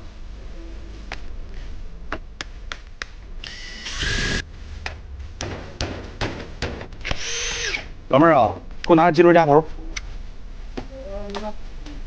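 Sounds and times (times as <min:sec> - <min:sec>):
electric drill whining: 0:03.4 - 0:04.4, 0:07.0 - 0:07.9.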